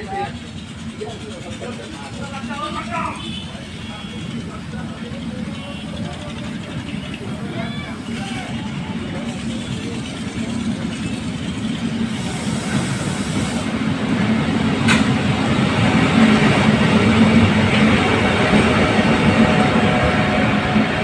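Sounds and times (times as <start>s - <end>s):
locomotive engine running: 0.0s - 21.0s
train wheels rumbling on rails: 0.0s - 21.0s
sharp click: 14.8s - 15.1s.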